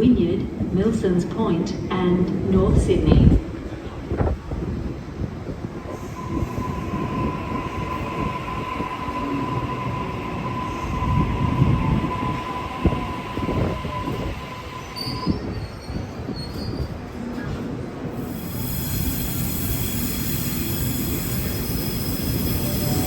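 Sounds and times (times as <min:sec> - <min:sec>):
train low rumble: 0:00.0 - 0:23.0
train wheel squeal: 0:05.8 - 0:17.6, 0:18.2 - 0:23.0.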